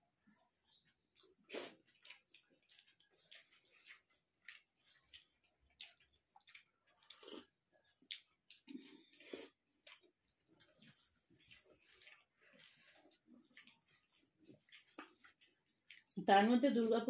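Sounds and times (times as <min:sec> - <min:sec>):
chewing and lip smacks: 0:00.2 - 0:16.2
sip from a bowl: 0:01.5 - 0:01.8.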